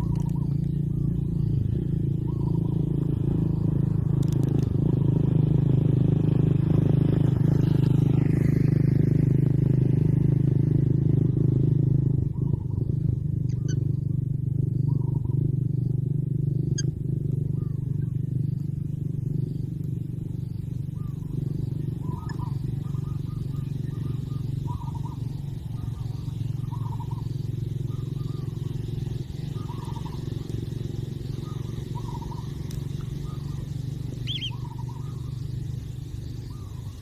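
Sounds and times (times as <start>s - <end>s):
faint chirps and clicks: 0.0s - 1.1s, 4.1s - 4.7s, 13.4s - 14.1s, 18.0s - 18.7s, 22.0s - 37.0s
low mechanical hum: 0.0s - 37.0s.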